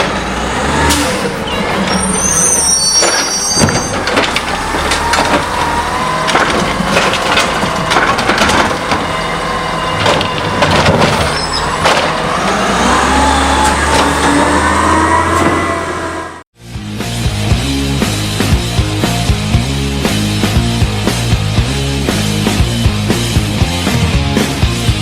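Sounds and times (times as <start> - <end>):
metal clanks and bangs: 0.0 - 16.4
garbage truck engine running: 0.0 - 25.0.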